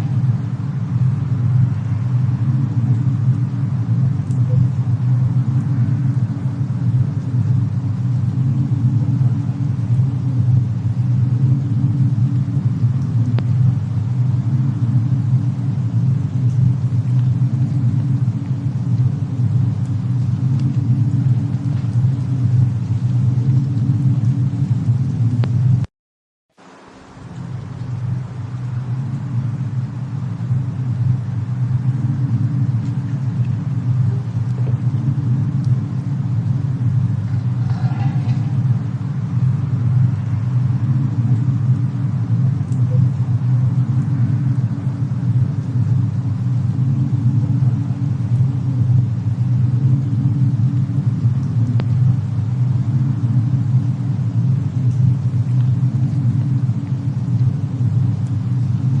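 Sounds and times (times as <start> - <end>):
faint fire crackles: 0.0 - 25.9, 26.6 - 59.0
low storm rumble: 0.0 - 25.9, 26.6 - 59.0
faint pitched sound: 37.6 - 39.4.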